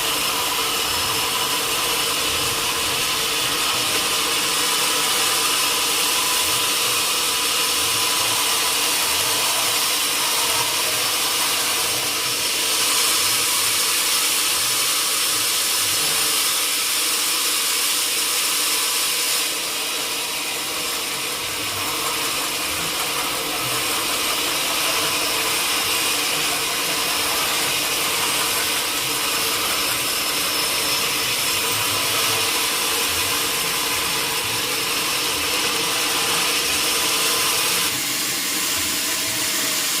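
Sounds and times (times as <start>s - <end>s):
sawmill saw cutting wood: 0.0s - 40.0s.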